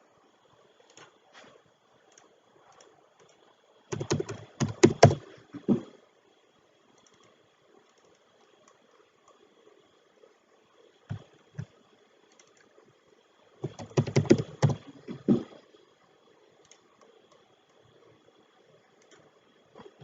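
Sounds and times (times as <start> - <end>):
keyboard key strokes: 3.9 - 5.8, 13.6 - 15.6.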